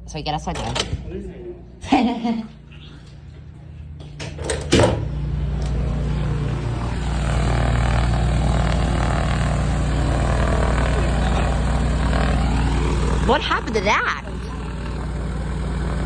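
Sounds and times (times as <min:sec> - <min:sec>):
propeller aircraft engine rumble: 0:05.3 - 0:16.0.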